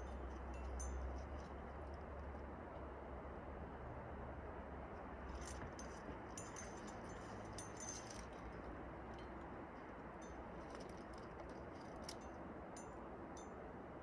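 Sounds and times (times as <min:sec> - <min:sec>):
climbing gear clinking: 0:05.3 - 0:08.4.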